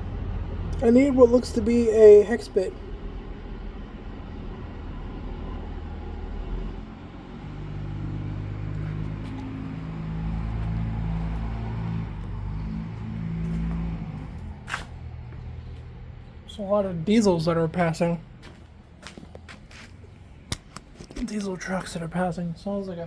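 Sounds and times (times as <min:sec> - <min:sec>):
diesel truck passing: 0:00.0 - 0:23.0.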